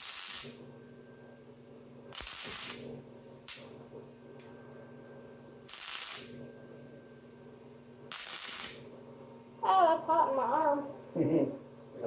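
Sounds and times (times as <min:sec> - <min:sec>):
welding arc crackling: 0:00.0 - 0:00.6, 0:02.1 - 0:03.7, 0:05.7 - 0:06.4, 0:08.1 - 0:08.9
steady low hum: 0:00.0 - 0:12.0.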